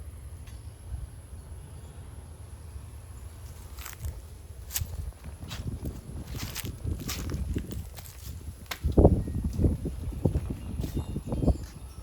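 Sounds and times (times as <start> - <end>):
wind buffeting microphone: 3.7 - 12.0.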